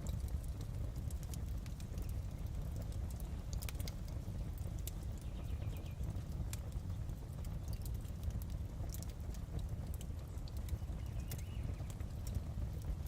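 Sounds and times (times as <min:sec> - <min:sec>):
fireplace crackling: 0:00.0 - 0:13.0
low rumble of burning logs: 0:00.0 - 0:13.0.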